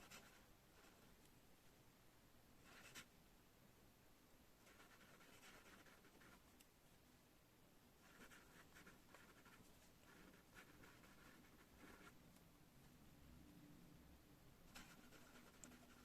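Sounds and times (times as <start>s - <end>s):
pen scratching on paper: 0.0s - 1.0s, 2.6s - 3.1s, 4.6s - 6.4s, 8.0s - 12.2s, 14.7s - 16.0s.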